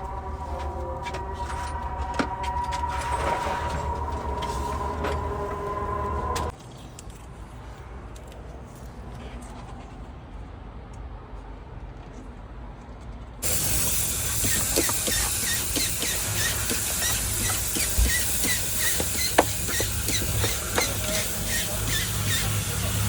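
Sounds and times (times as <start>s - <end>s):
steam cleaner hissing: 13.4s - 23.0s
short high squeaks: 13.5s - 23.0s.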